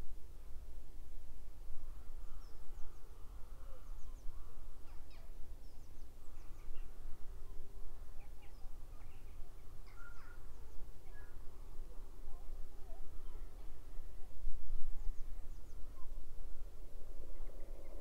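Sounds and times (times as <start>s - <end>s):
small birds chirping: 2.3s - 14.1s.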